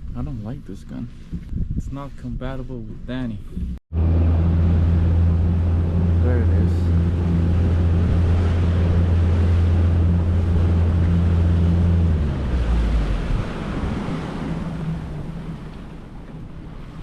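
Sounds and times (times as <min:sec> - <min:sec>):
boat engine humming: 0:03.3 - 0:17.0
wind and water rushing: 0:03.9 - 0:17.0.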